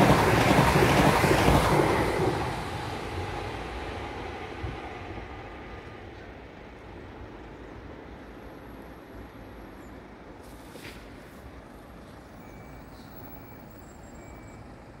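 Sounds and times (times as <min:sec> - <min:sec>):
train rumbling: 0:00.0 - 0:15.0
brief hiss: 0:10.4 - 0:11.6.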